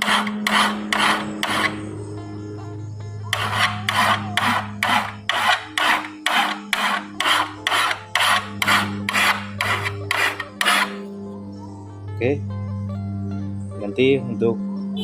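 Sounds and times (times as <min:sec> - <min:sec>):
file rasping on steel blade: 0:00.0 - 0:01.8, 0:03.3 - 0:11.0.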